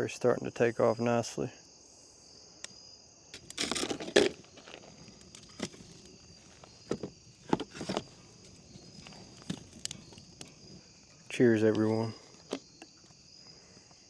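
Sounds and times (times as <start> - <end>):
crickets trilling: 0.0 - 14.0
scuffs and knocks: 3.4 - 10.7.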